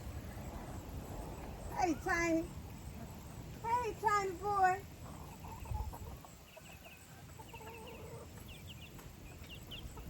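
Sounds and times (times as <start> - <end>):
chickens clucking softly: 5.0 - 10.0.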